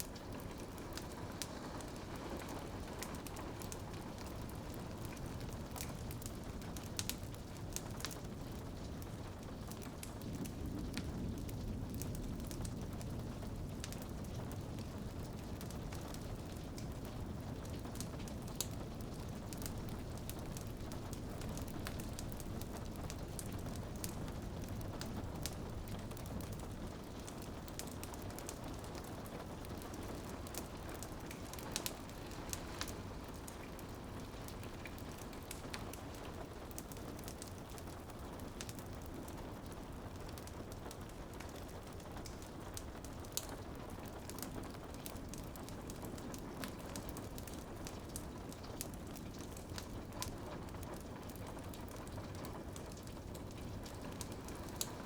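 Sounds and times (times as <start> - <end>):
rain pattering on a window: 0.0 - 55.0
wood fire crackling: 0.0 - 55.0.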